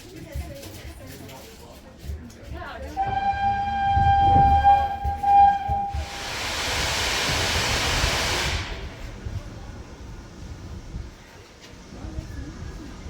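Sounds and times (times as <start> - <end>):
steam locomotive whistle: 2.9 - 9.1
low rumble: 3.1 - 11.1
hiss of escaping steam: 5.3 - 10.1.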